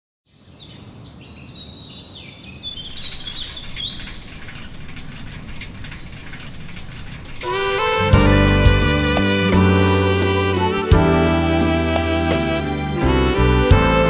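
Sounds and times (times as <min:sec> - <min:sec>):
small birds chirping: 0:00.3 - 0:08.1
outdoor background noise: 0:00.3 - 0:14.0.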